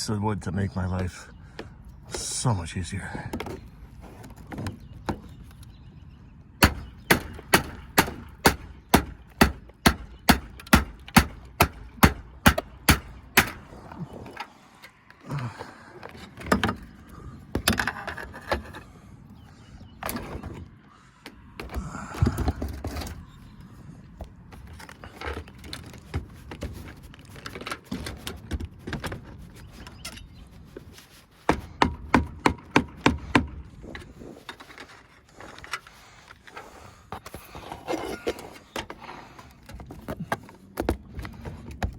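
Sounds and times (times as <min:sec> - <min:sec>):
wood scraping: 0:03.2 - 0:05.7, 0:06.6 - 0:31.8, 0:33.7 - 0:41.9
hammer striking wood: 0:06.6 - 0:13.6, 0:31.5 - 0:33.6.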